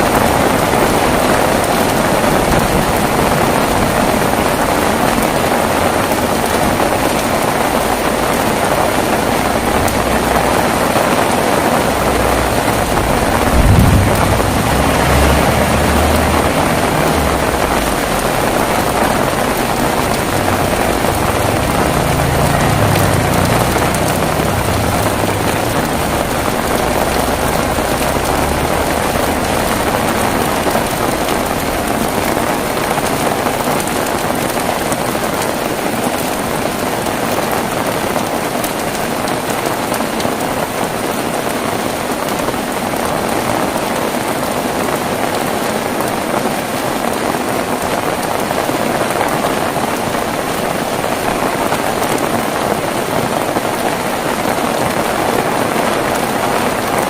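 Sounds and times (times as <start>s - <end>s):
heavy rain: 0.0s - 57.0s
low rumble: 9.3s - 33.3s.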